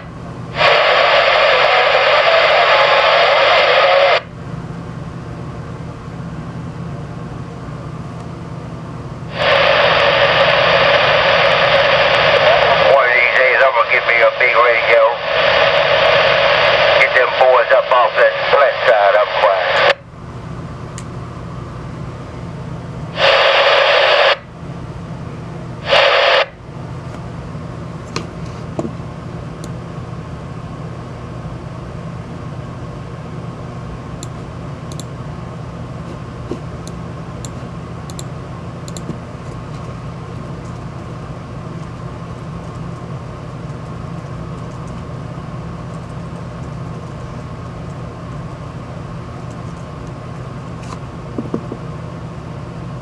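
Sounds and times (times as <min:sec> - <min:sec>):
loud static burst: 0:00.0 - 0:04.3, 0:09.3 - 0:20.0, 0:23.1 - 0:24.5, 0:25.8 - 0:26.6
radio static hiss: 0:00.0 - 0:04.3, 0:09.3 - 0:20.0, 0:23.1 - 0:24.5, 0:25.8 - 0:26.6.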